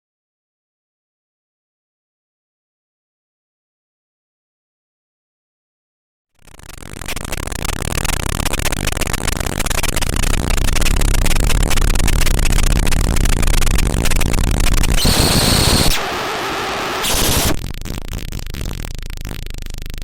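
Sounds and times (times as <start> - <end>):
crackling static hiss: 6.4 - 20.0
high steady tone: 6.5 - 17.6.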